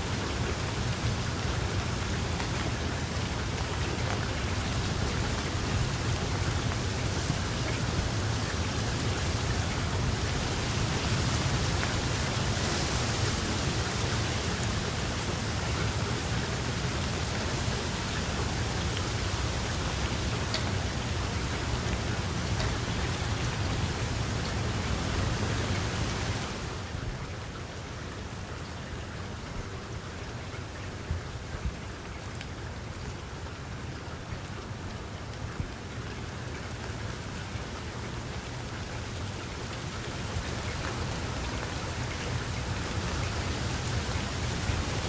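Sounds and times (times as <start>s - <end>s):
steady rain falling: 0.0s - 45.0s.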